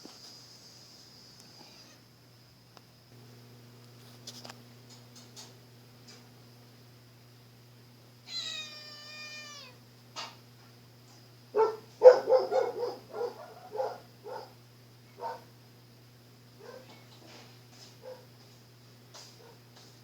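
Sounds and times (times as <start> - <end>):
cat meowing: 8.3 - 9.8.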